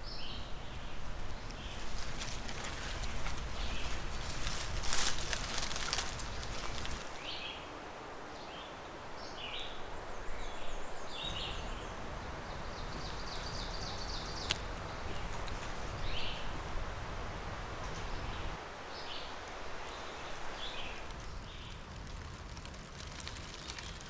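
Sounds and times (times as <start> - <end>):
small birds chirping and trilling: 0.0 - 16.6
steady woodland hiss: 0.0 - 21.8.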